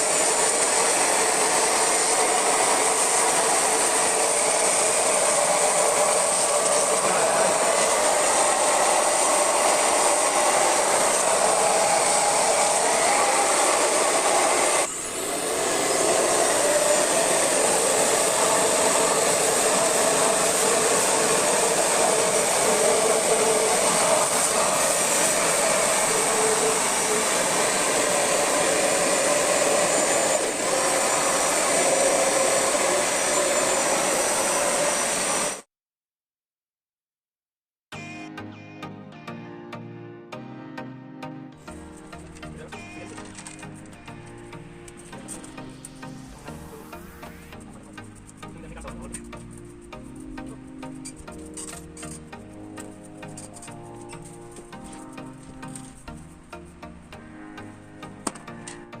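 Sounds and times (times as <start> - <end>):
cleaning machine hissing: 0.0 - 35.7, 41.7 - 56.7.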